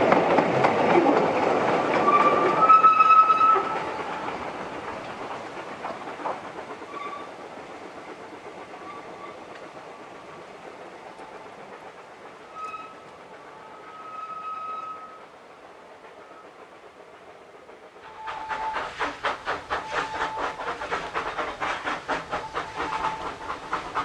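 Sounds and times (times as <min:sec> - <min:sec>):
train wheels clacking: 0:00.0 - 0:24.0
high brake squeals: 0:12.5 - 0:13.0, 0:13.6 - 0:15.2.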